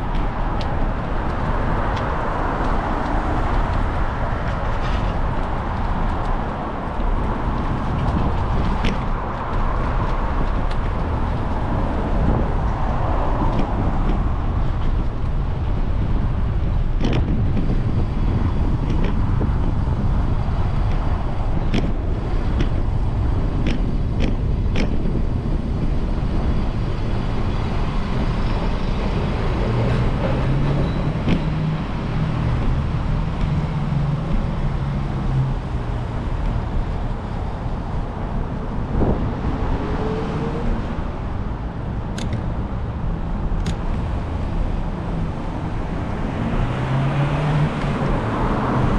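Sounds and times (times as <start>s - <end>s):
road and traffic noise: 0.0s - 48.9s
sharp clicks and knocks: 23.6s - 25.0s, 42.1s - 42.6s, 43.6s - 44.0s.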